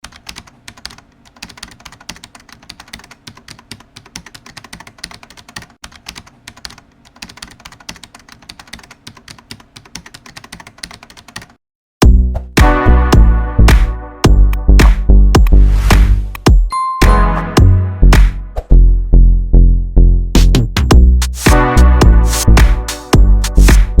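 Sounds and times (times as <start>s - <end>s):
electronic music with a beat: 12.0s - 19.0s, 20.2s - 24.0s.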